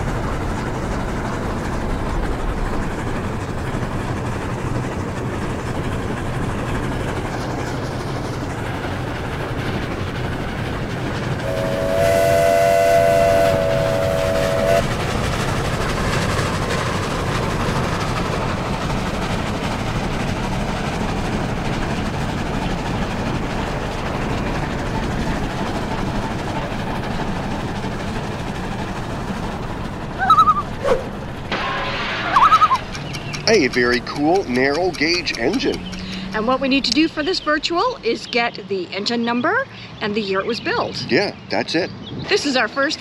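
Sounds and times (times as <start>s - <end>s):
moving train rumble and clatter: 0.0s - 43.0s
train whistle chord: 11.4s - 14.8s.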